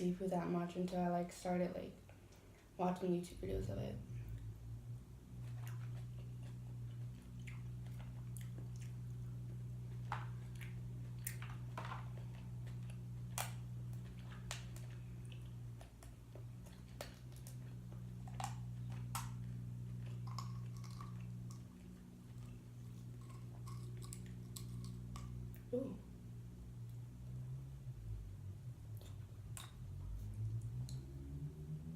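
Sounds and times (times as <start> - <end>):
steady low hum: 0.0 - 31.9
wet chewing and mouth clicks: 5.4 - 25.7, 28.9 - 31.1.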